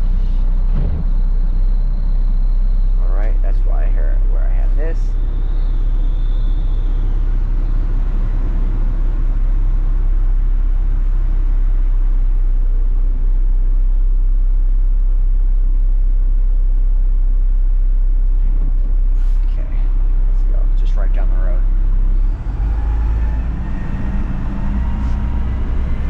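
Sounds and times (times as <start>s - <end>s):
garbage truck diesel engine running: 21.6s - 26.0s.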